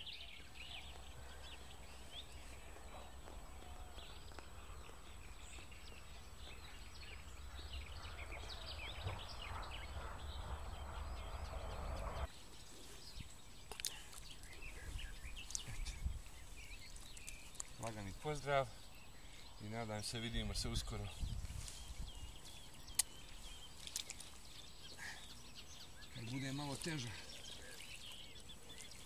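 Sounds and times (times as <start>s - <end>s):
small birds chirping: 0.0s - 29.0s
steady low rumble: 0.9s - 12.3s.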